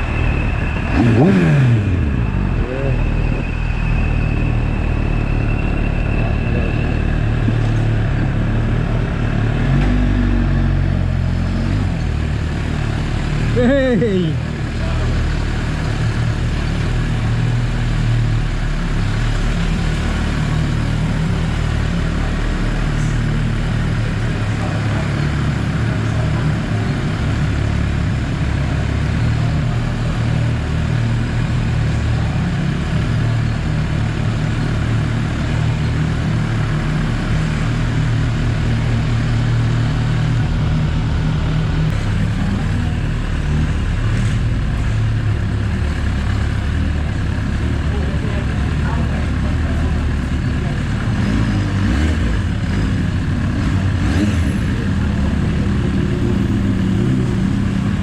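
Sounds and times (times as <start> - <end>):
motorcycle engine idling: 10.6 - 51.7, 54.7 - 58.0.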